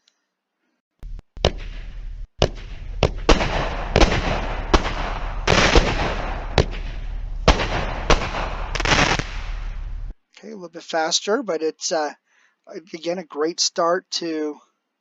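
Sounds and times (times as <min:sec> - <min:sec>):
firework reports: 0:01.1 - 0:10.1
firework crackling hiss: 0:01.4 - 0:10.1.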